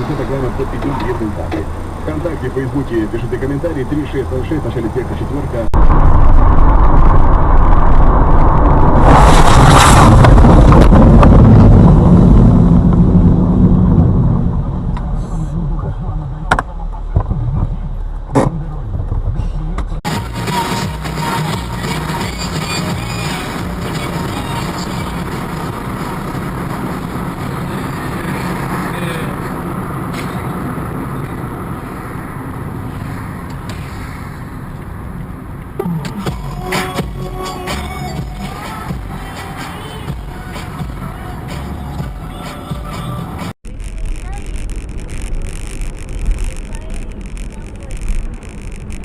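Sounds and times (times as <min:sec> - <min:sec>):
vehicle rumbling: 0:00.0 - 0:49.0.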